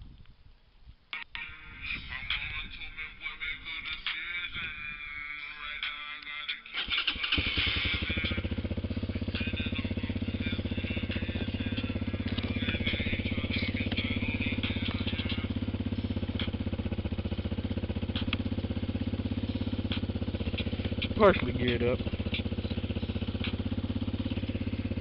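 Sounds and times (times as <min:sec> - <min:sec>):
dirt bike engine idling: 0:06.8 - 0:25.0.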